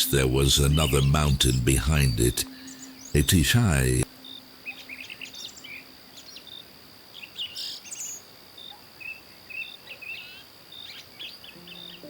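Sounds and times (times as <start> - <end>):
birds chirping and trilling: 0.0 - 3.9
soft sustained music notes: 0.0 - 7.4, 11.6 - 12.0.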